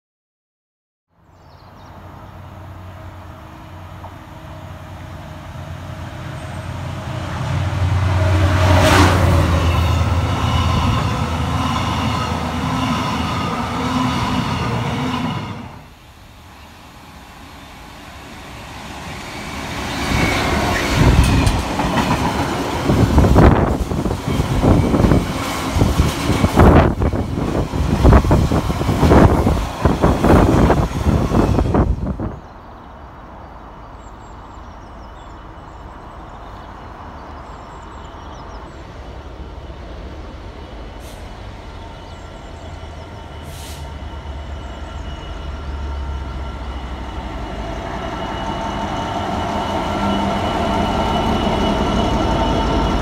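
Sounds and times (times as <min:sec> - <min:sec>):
passenger train rumbling past: 0:01.4 - 0:53.0
train wheels clattering and knocking: 0:21.0 - 0:30.0.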